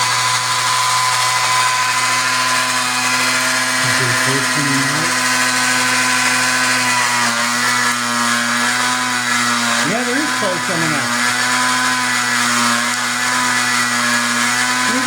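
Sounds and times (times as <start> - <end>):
model train motors whining: 0.0 - 6.8.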